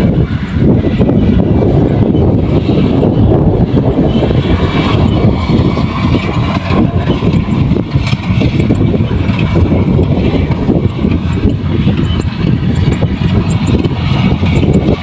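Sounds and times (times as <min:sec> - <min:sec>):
combine harvester running: 0:00.0 - 0:15.0.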